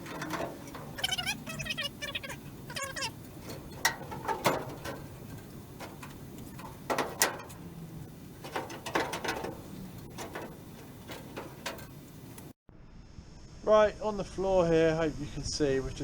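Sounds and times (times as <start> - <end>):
knocks and scrapes on steel panel: 0.0 - 1.5, 2.8 - 7.7, 8.4 - 12.2.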